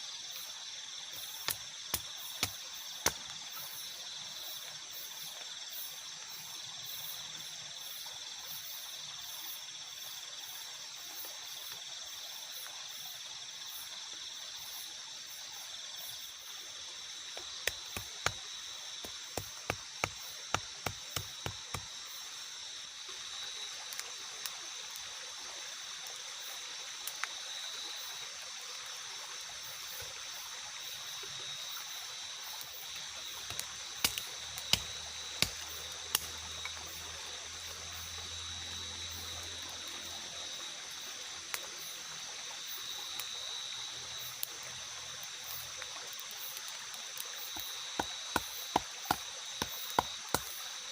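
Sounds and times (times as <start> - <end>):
insect drone: 0.0 - 50.9
running water: 14.8 - 50.9.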